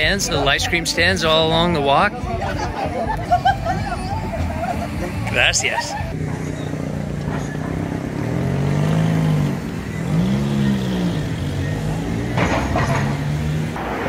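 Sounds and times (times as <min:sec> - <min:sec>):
vehicle engine revving: 0:06.1 - 0:14.0
rush of noise: 0:13.7 - 0:14.0.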